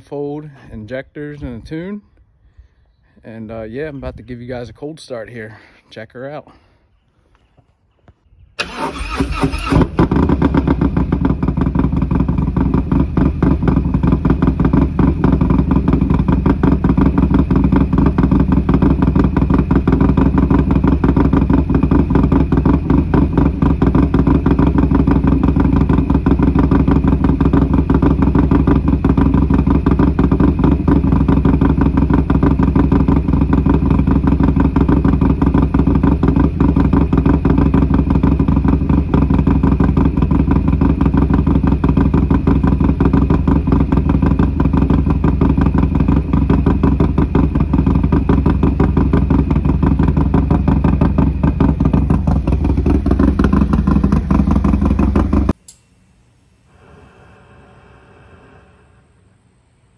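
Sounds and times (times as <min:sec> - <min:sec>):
motorcycle engine starting and idling: 0:08.3 - 0:55.8.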